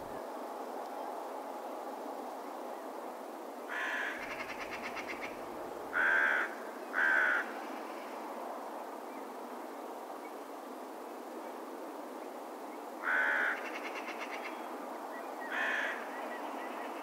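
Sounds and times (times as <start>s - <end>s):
steady background hiss: 0.0s - 17.0s
crow cawing: 3.7s - 7.5s, 13.0s - 14.5s, 15.5s - 16.1s.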